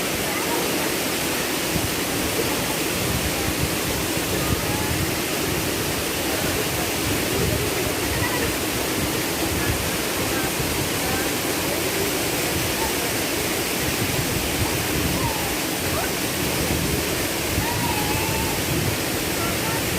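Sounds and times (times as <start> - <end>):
waterfall rushing: 0.0 - 19.9.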